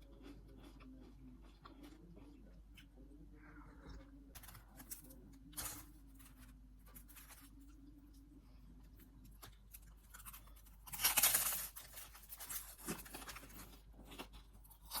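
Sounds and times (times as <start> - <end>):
chewing sounds: 0.0 - 6.3.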